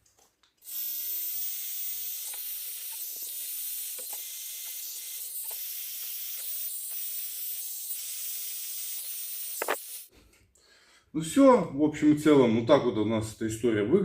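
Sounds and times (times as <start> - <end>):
heat gun blowing: 0.6 - 10.1.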